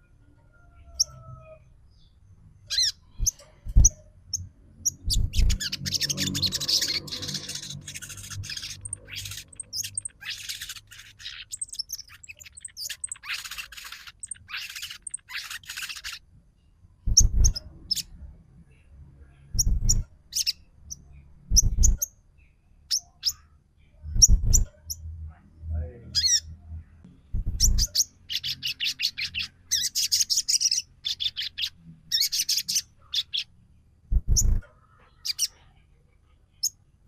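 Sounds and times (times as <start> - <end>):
sharp high bird chirps: 2.7 - 16.2, 17.1 - 18.1, 19.6 - 22.2, 24.1 - 25.0, 27.4 - 33.5
sunbird rattling chatter: 5.2 - 16.2.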